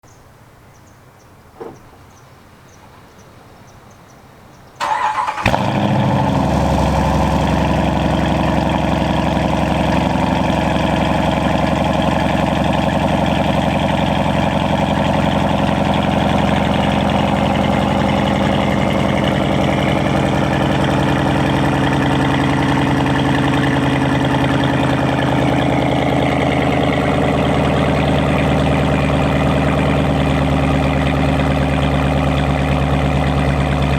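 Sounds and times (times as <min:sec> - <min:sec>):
engine starter cranking: 0:04.8 - 0:07.8
vee eight engine idling: 0:04.8 - 0:33.9.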